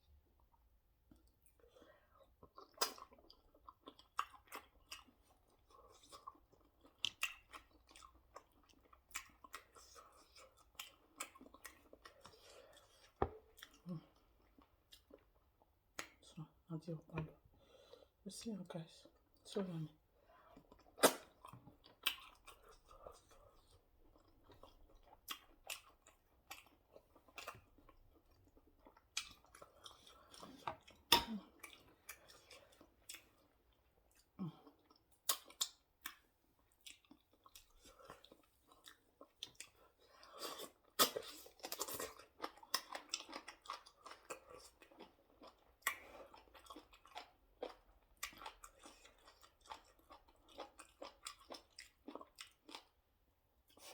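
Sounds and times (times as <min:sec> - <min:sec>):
person chewing food: 0:00.4 - 0:16.3, 0:20.1 - 0:53.9.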